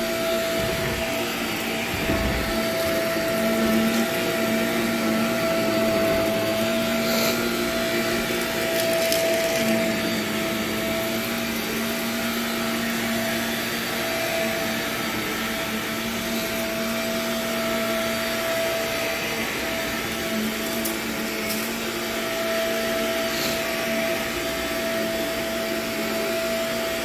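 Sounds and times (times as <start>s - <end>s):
vacuum cleaner running: 0.0s - 27.0s
debris crackling in vacuum: 0.4s - 10.2s.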